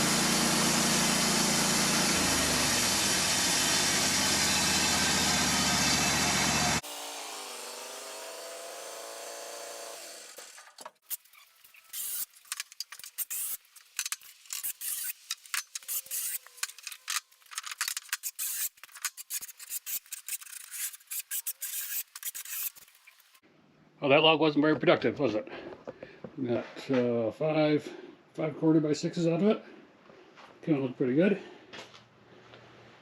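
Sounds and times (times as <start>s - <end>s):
sawmill winding down: 0.0s - 10.8s
scraping and clicking of handling: 10.6s - 23.2s.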